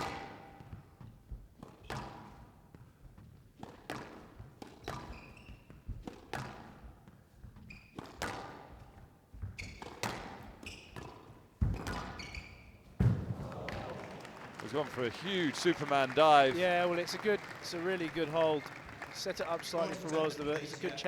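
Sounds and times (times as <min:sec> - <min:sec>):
squash ball hits: 0:03.6 - 0:06.9, 0:08.0 - 0:14.0
shoes squeaking on floor: 0:04.8 - 0:13.2.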